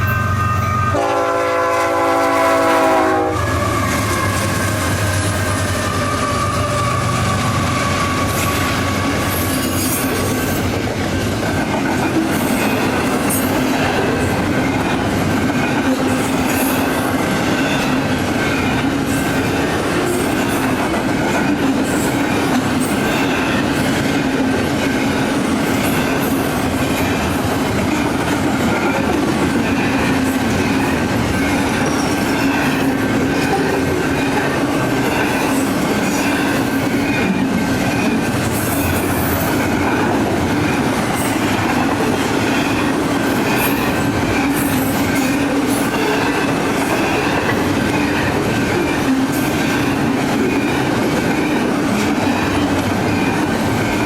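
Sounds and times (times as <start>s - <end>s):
train horn blast: 0.0s - 4.6s
freight train rumbling on rails: 0.0s - 54.0s.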